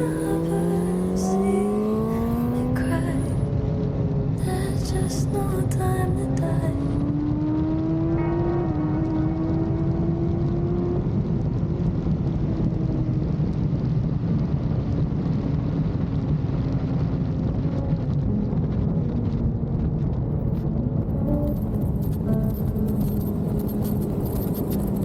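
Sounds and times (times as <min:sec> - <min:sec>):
motorcycle engine drone: 0:00.0 - 0:25.0.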